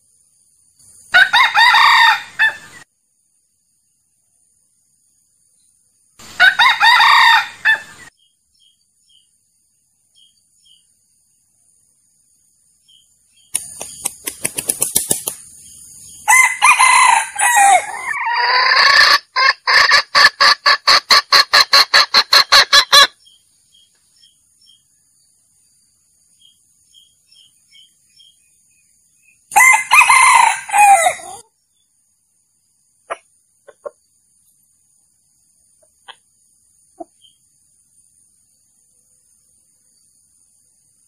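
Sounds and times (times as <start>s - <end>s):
rooster crowing: 1.1s - 2.8s, 6.4s - 8.1s, 16.2s - 19.3s, 29.5s - 31.4s
sharp wing claps: 13.5s - 15.6s.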